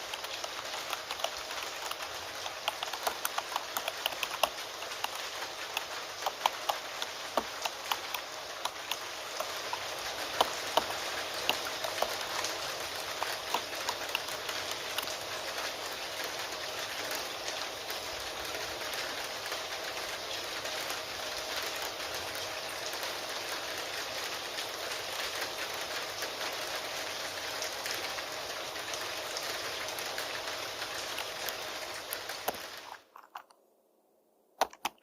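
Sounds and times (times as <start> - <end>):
computer keyboard typing: 0.0 - 15.6, 30.8 - 33.5, 34.6 - 35.0
falling rain hiss: 0.0 - 33.1.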